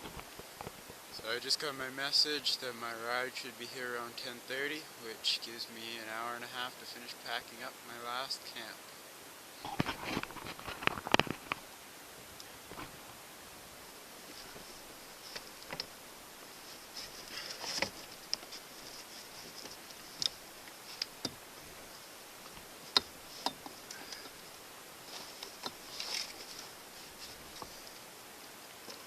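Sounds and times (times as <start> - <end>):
short rustles: 16.5 - 28.1.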